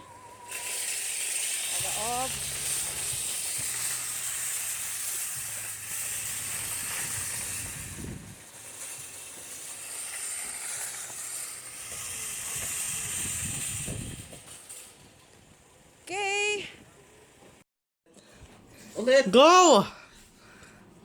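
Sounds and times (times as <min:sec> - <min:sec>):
road noise hiss in car: 0:00.4 - 0:16.0.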